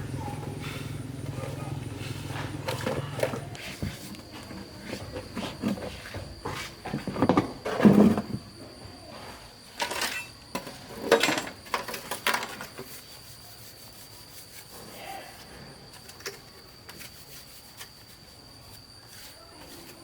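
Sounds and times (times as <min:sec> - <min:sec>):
objects scraping and knocking: 0:02.3 - 0:08.5.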